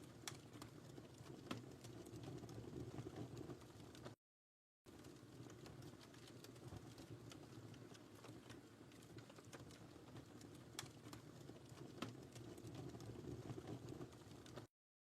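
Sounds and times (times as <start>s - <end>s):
wood fire crackling: 0.0s - 4.2s, 4.9s - 14.7s.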